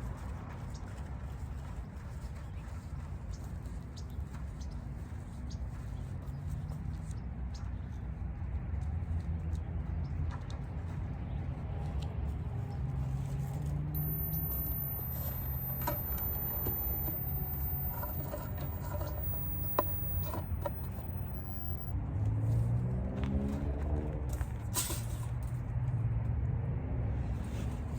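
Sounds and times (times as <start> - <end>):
road traffic rumble: 12.2 - 27.9
vehicle engine rising in pitch: 13.8 - 22.0
light clicks and scrapes: 14.0 - 21.9.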